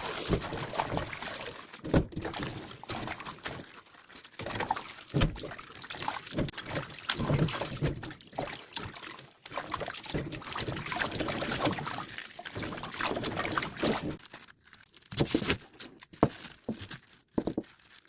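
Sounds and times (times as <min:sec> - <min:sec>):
water splashes: 0:00.0 - 0:14.2
water pouring and sloshing: 0:00.0 - 0:14.3.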